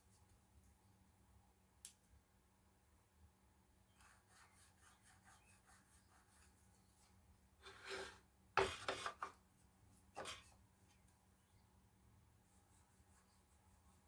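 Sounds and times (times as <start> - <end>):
hand scraping on wood: 7.6 - 9.3, 10.2 - 10.5.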